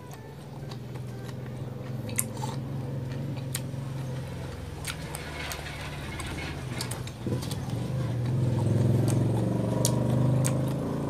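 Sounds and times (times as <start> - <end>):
person chewing crunchy fruit: 0.0 - 5.2, 6.8 - 11.0
steady low hum: 0.0 - 9.8.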